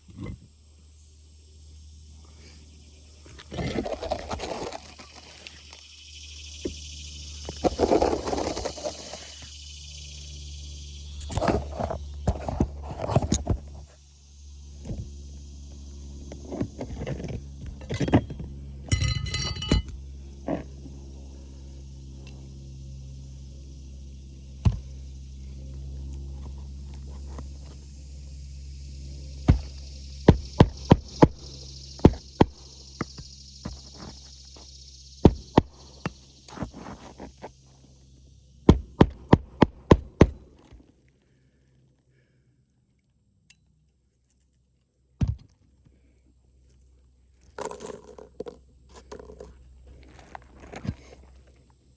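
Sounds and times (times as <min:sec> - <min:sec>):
motor-like hum with hiss: 0:00.0 - 0:19.1, 0:19.9 - 0:40.8.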